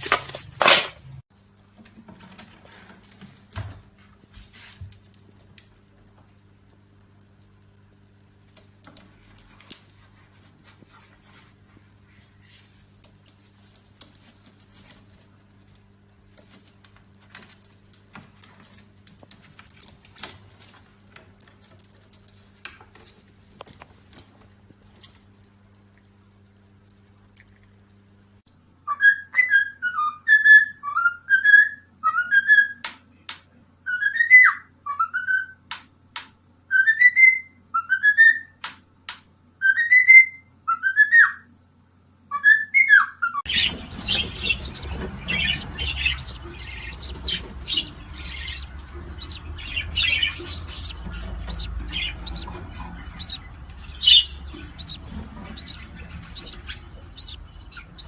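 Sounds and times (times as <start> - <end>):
parrot squawks and chirps: 42.3 - 58.0.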